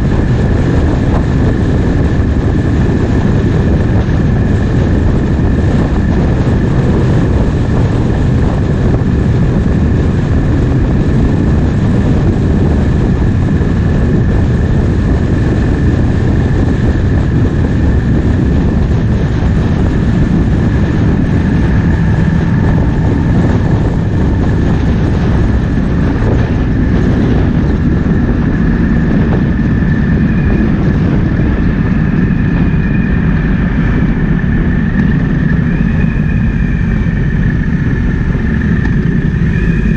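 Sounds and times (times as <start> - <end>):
motorcycle engine running: 0.0 - 39.9
steady high whine: 0.0 - 39.9
wind noise on microphone: 0.0 - 39.9.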